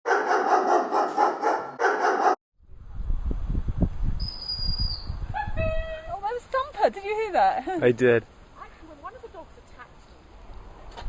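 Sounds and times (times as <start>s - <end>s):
puppies yapping: 0.1s - 2.4s.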